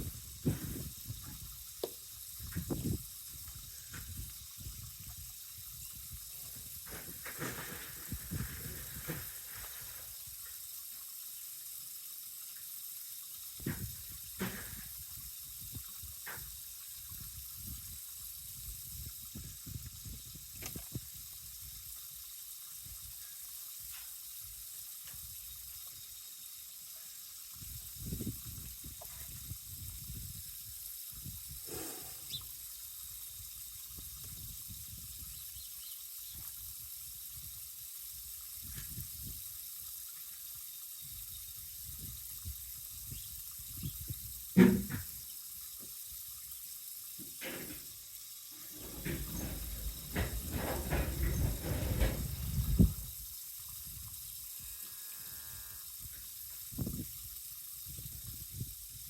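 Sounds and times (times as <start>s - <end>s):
wind rumbling on microphone: 0.0s - 9.3s, 13.6s - 21.8s, 27.6s - 32.5s, 33.2s - 35.4s, 41.1s - 45.1s, 48.6s - 54.4s, 56.0s - 59.0s
steady hiss: 0.0s - 59.0s
scattered knocks: 48.6s - 53.0s.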